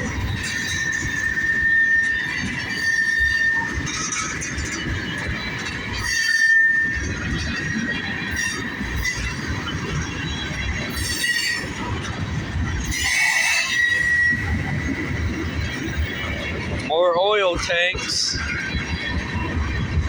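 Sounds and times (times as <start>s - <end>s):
high wheel squeal: 0.0s - 16.4s
train wheels rumbling on rails: 0.0s - 20.0s.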